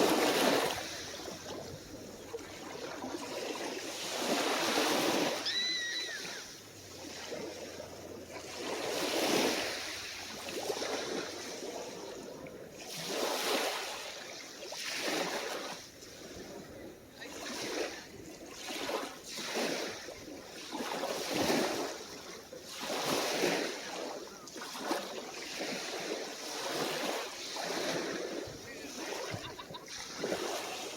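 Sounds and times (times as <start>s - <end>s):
small waves washing ashore: 0.0s - 30.9s
brief high-pitched call: 5.4s - 6.4s.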